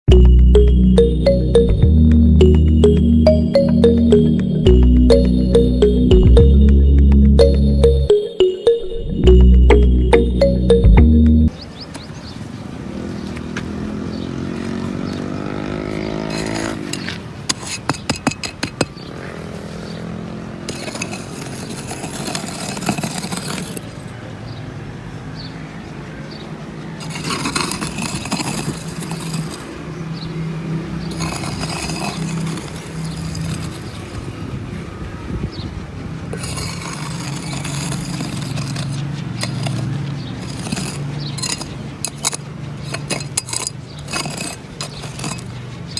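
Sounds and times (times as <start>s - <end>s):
scraping and clicking: 16.3s - 18.9s, 20.7s - 23.9s, 27.0s - 29.8s, 31.0s - 34.2s, 36.3s - 45.9s.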